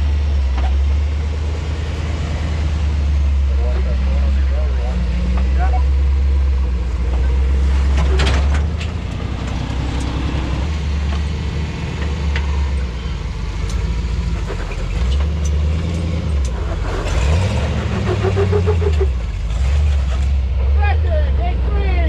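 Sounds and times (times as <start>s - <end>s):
vehicle engine running and revving: 0.0s - 22.0s
knocks and clatter: 7.0s - 12.9s.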